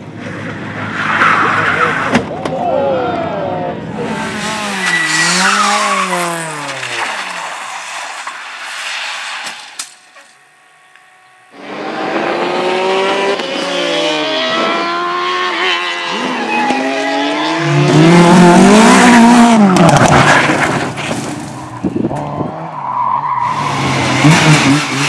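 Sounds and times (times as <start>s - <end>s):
race car engine revving: 3.3s - 7.5s, 11.5s - 25.0s.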